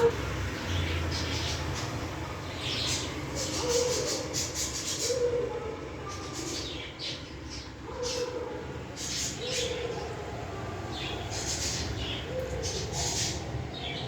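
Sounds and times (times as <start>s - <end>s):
budgies chirping and chattering: 2.6s - 5.3s, 9.0s - 10.0s, 10.9s - 14.0s.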